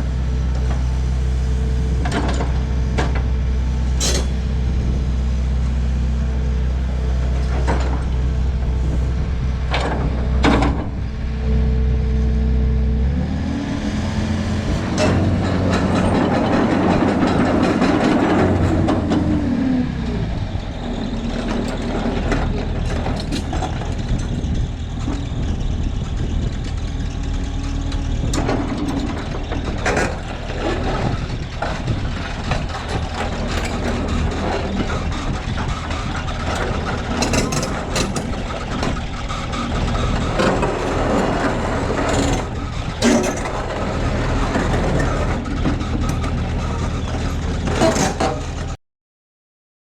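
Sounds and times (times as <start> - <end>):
excavator diesel engine: 0.0 - 48.8.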